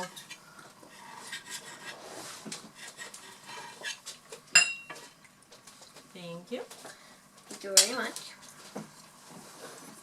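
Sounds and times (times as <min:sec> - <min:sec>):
cutlery clinking on plates: 0:04.6 - 0:05.1.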